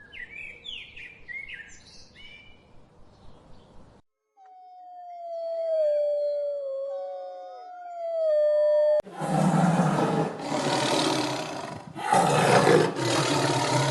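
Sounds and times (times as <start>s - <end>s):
lion roaring: 9.1s - 13.9s.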